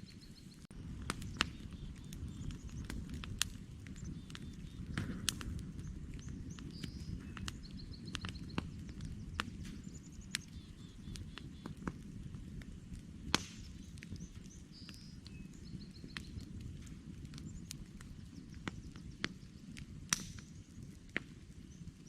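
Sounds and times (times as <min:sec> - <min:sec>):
campfire crackling and popping: 0:00.1 - 0:22.0
songbird chirping: 0:05.8 - 0:11.8.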